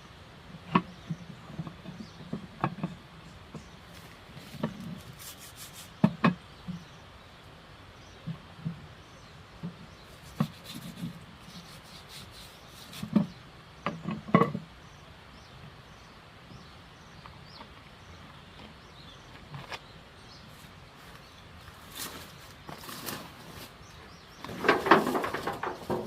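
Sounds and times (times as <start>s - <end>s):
beeswax rubbing on wood: 4.4s - 6.1s, 10.1s - 13.3s.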